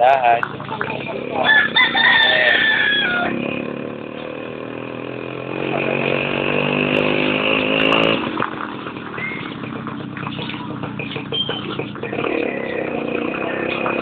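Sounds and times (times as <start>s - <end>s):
motorcycle engine revving: 0.0s - 14.0s
rooster crowing: 1.4s - 3.5s.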